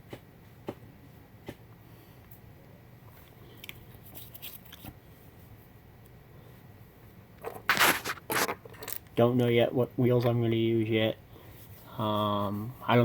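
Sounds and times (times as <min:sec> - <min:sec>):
low room hum: 0:00.0 - 0:13.0
plastic parts clicking and rustling: 0:07.4 - 0:09.2.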